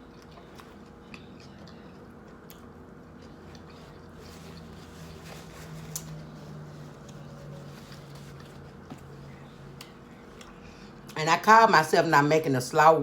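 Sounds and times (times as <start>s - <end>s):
close chewing mouth sounds: 0.0s - 4.7s
low steady hum: 0.0s - 13.0s.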